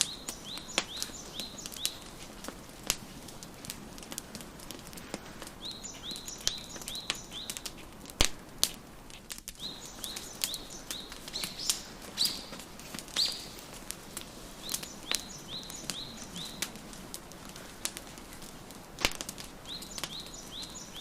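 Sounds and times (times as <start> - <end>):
small bird chirping: 0.0 - 2.2, 5.6 - 7.9, 9.6 - 13.6, 14.6 - 16.8, 19.7 - 21.0
wood fire crackling: 0.0 - 21.0.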